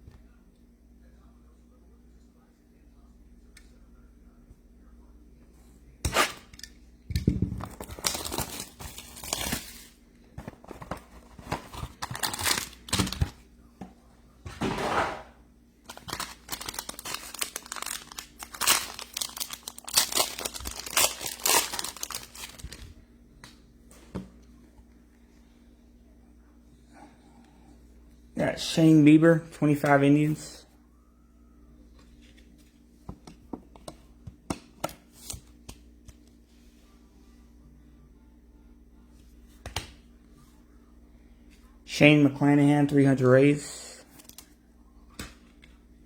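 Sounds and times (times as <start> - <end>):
plastic wrapping crinkling and tearing: 7.6 - 10.0, 10.7 - 13.3, 15.9 - 22.9.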